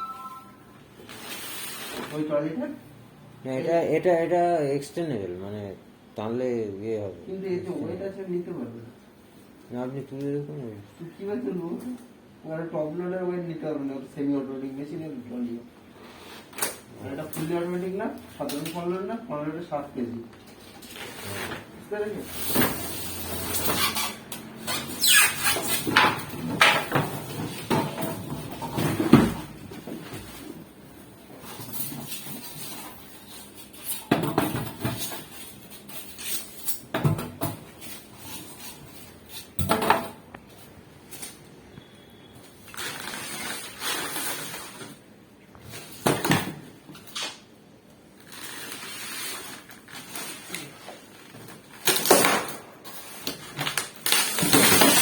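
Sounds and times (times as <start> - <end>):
objects knocking and clattering: 25.7 - 40.5.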